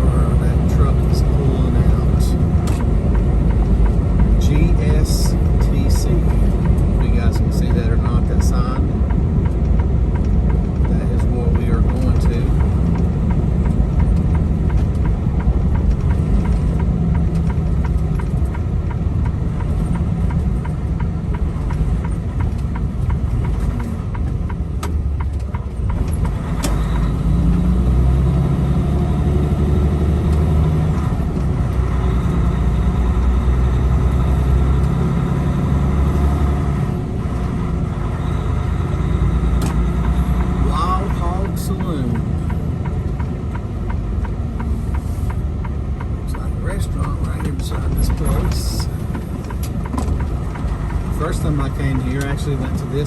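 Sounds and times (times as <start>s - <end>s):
truck diesel engine running: 0.0s - 53.0s
sharp clicks: 39.1s - 53.0s.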